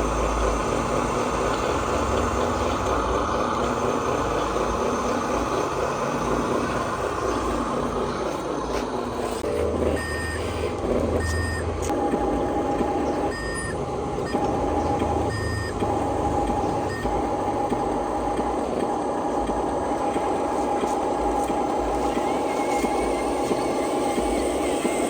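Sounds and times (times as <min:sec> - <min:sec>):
electric motors whining: 0:00.0 - 0:25.0
steady high hum: 0:00.0 - 0:25.0
short reversing beeps: 0:10.0 - 0:10.5, 0:13.3 - 0:14.4.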